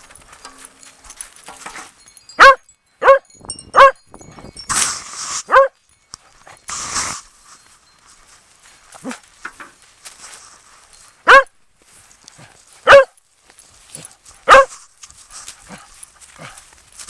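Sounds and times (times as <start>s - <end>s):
dog barking loudly: 2.4s - 4.0s, 5.5s - 5.8s, 11.2s - 11.5s, 12.8s - 13.1s, 14.4s - 14.8s
footsteps crunching in snow: 6.3s - 17.0s.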